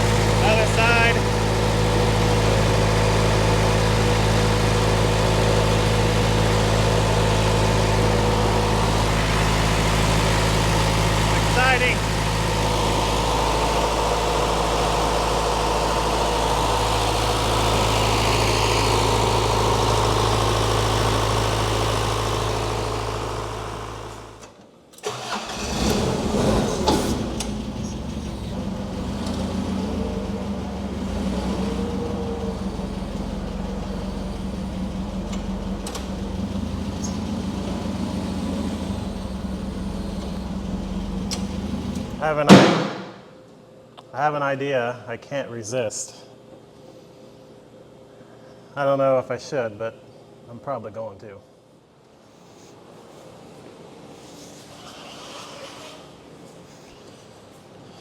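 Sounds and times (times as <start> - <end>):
skid steer engine running: 0.0 - 43.2.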